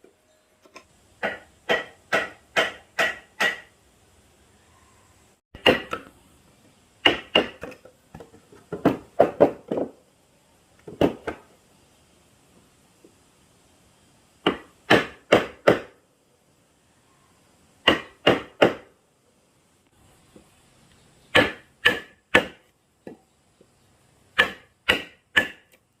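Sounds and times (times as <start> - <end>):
hand tool striking wood: 1.2 - 3.7, 5.6 - 6.1, 7.0 - 10.0, 14.4 - 15.9, 17.8 - 18.9, 21.3 - 23.2, 24.4 - 25.8.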